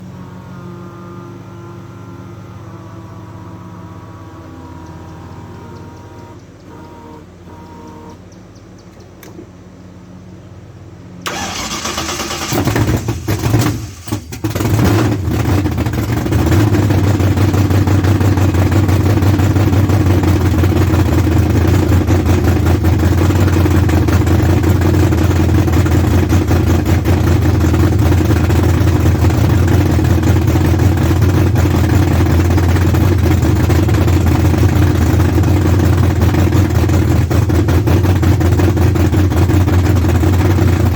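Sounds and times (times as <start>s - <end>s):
engine running loudly: 0.0s - 8.2s, 10.9s - 40.9s
engine cranking: 11.2s - 40.9s.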